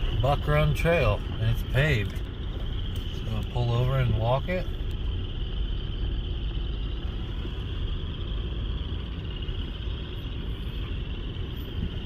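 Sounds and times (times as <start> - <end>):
car engine low rumble: 0.0 - 12.0
frogs chorus: 0.0 - 12.0.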